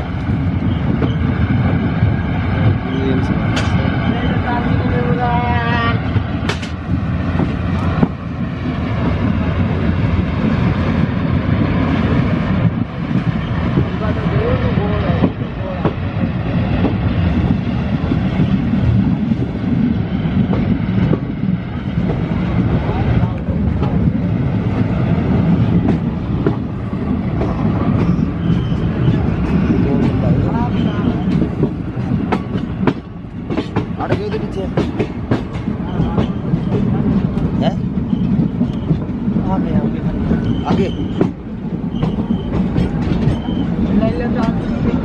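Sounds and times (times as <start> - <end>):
train wheels rumbling: 0.0 - 45.0
sharp track clicks: 6.4 - 8.2, 25.6 - 43.7.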